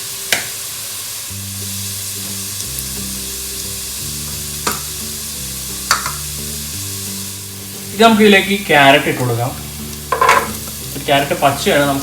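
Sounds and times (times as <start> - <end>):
onion sizzling in hot oil: 0.0 - 12.0
soft background music: 0.0 - 12.0
spatula clicking against pan: 5.9 - 6.2.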